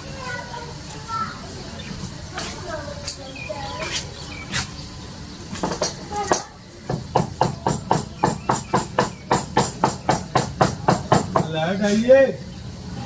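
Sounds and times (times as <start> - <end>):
rapid tapping knocks: 5.6 - 11.6.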